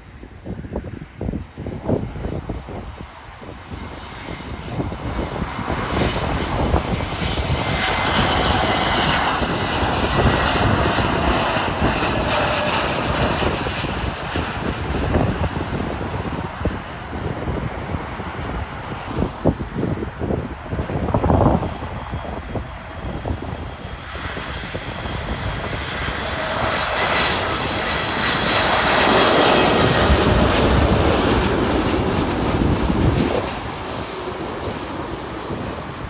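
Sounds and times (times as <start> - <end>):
jet airliner engine roar: 0.0 - 36.0
steady high engine whine: 0.0 - 36.0.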